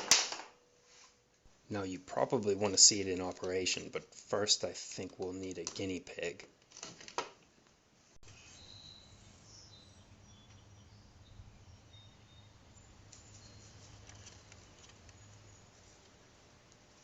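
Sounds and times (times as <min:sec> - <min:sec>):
low steady hum: 0:07.6 - 0:17.0
distant birds chirping: 0:08.2 - 0:17.0.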